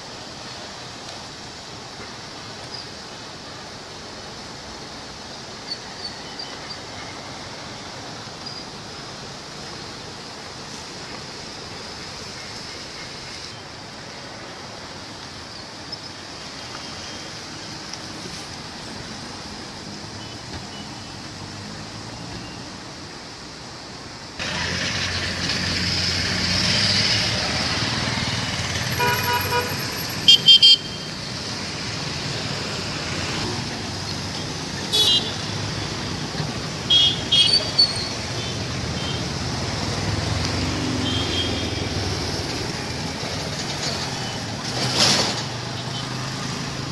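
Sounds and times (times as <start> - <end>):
road traffic: 0.0 - 46.9
car horns honking: 28.9 - 31.2, 34.4 - 35.5, 36.8 - 39.3, 40.7 - 42.0.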